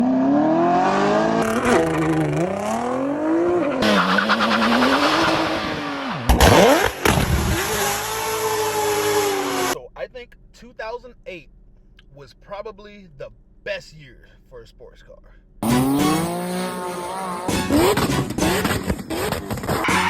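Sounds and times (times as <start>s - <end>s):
sports car engines revving: 0.0s - 9.8s, 15.6s - 20.0s.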